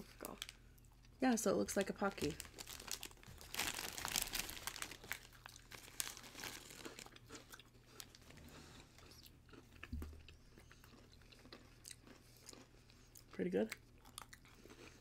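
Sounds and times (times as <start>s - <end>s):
biscuit sticks crunching: 1.8s - 15.0s.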